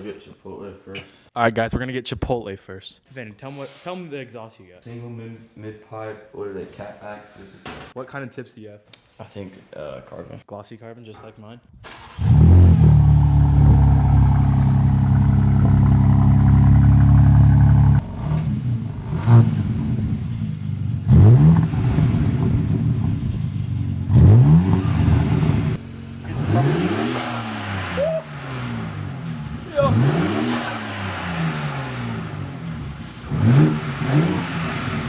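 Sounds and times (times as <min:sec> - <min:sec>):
car engine accelerating: 0:11.8 - 0:35.0.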